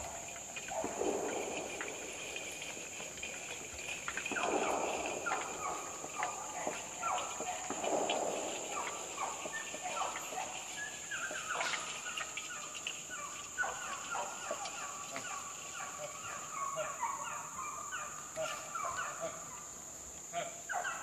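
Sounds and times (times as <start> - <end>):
steady high-pitched whine: 0.0 - 15.9
birds calling in falling notes: 0.0 - 19.6.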